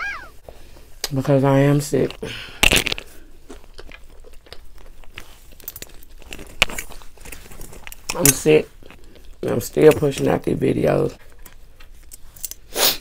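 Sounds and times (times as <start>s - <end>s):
person chewing food: 2.6s - 8.1s, 8.7s - 9.4s.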